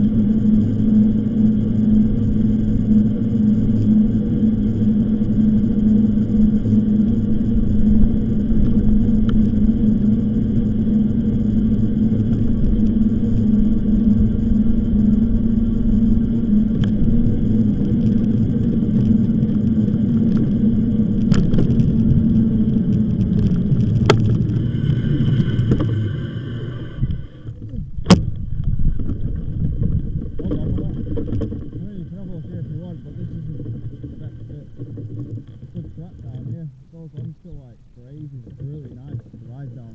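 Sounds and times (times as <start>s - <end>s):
electric motor hum: 0.0s - 39.9s
wind on microphone: 0.0s - 39.9s
tyre rumble: 27.5s - 36.6s.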